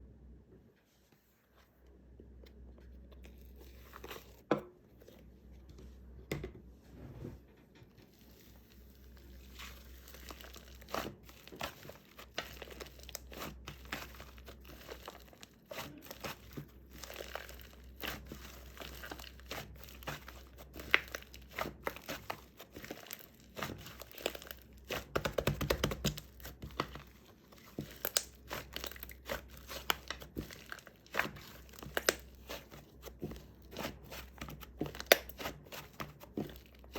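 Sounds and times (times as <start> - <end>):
slime squished by hand: 8.1 - 36.9
sticky clicks and crackling pops: 23.2 - 27.0, 27.8 - 32.6.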